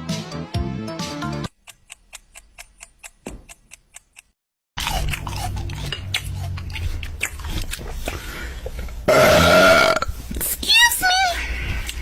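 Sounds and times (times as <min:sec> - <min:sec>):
close-up crunching and clicking: 0:01.5 - 0:08.2.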